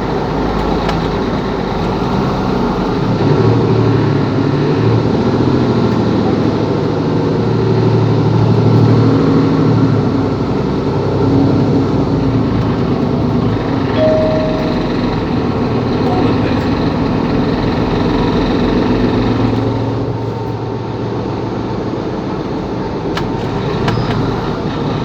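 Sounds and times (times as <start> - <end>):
bus diesel engine running: 0.0 - 25.0
short beep: 14.0 - 15.4.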